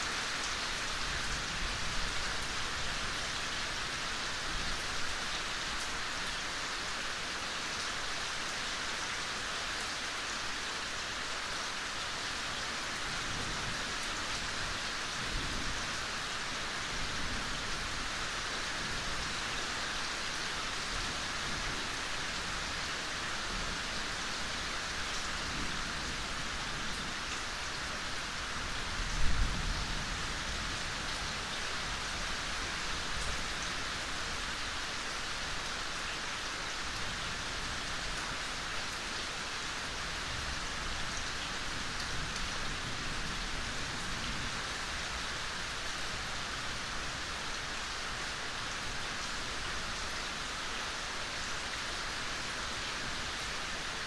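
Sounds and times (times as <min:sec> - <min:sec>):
gentle rain hiss: 0:00.0 - 0:54.0.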